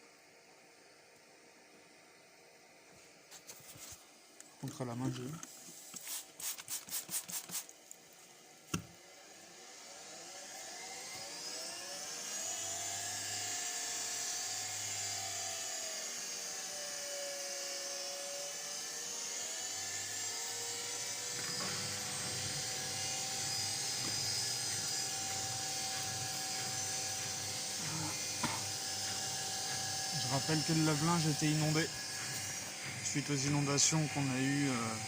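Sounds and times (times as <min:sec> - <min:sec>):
washing machine motor whine: 0:08.3 - 0:35.0
knock: 0:28.4 - 0:28.7.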